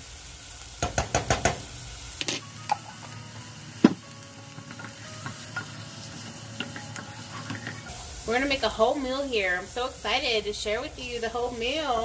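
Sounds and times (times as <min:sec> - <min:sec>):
onions sizzling in butter: 0:00.0 - 0:12.0
spoons knocking against pan: 0:00.8 - 0:02.9.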